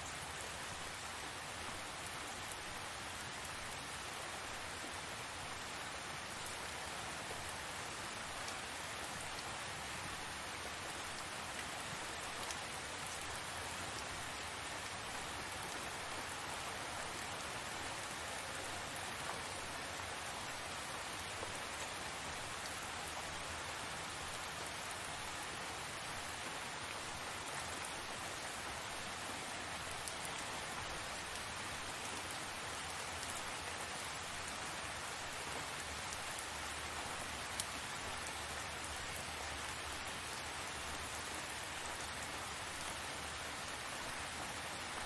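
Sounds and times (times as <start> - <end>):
steady rain falling: 0.0 - 45.0.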